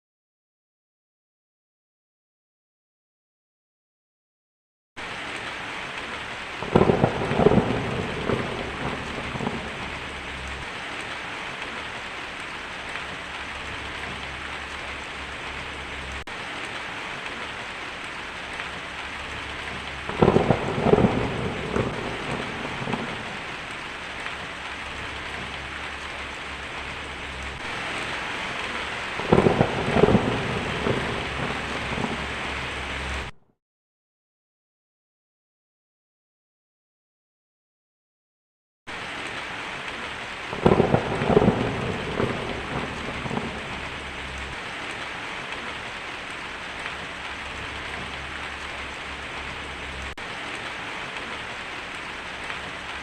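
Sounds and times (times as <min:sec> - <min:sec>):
heavy rain on a tin roof: 0:05.0 - 0:33.4, 0:38.9 - 0:53.0
rolling thunder: 0:06.6 - 0:10.7, 0:18.4 - 0:33.3, 0:40.5 - 0:45.7.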